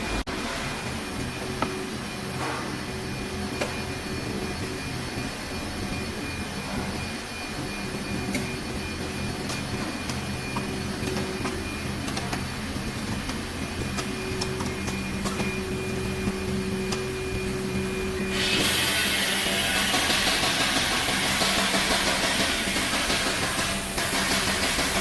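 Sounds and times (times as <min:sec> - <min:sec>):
machine hum: 0:00.0 - 0:25.0
loud air hiss: 0:18.3 - 0:20.0.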